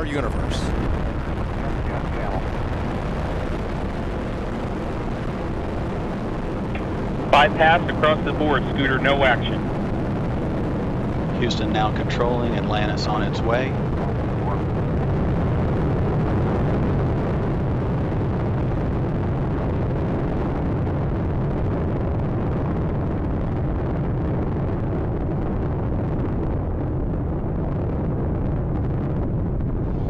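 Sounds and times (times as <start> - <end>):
rocket engines deep rumble: 0.0 - 30.0.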